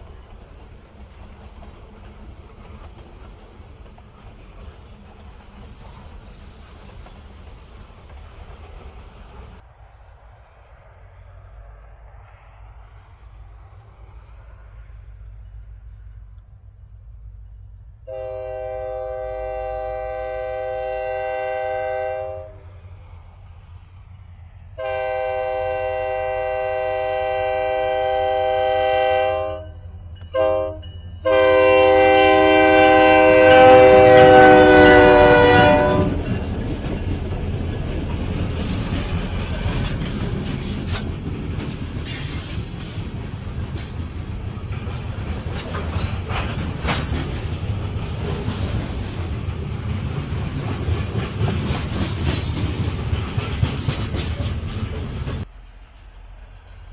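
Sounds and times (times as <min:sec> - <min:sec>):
wheels clicking over rail joints: 0:00.0 - 0:09.6, 0:32.4 - 0:56.0
locomotive rumble: 0:00.0 - 0:56.9
locomotive air horn blasts: 0:18.0 - 0:22.7, 0:24.8 - 0:36.3.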